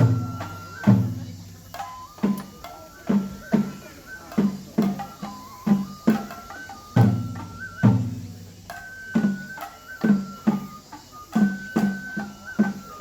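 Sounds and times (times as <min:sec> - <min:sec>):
taiko drum strikes: 0:00.0 - 0:12.3
bamboo flute high notes: 0:00.0 - 0:13.0.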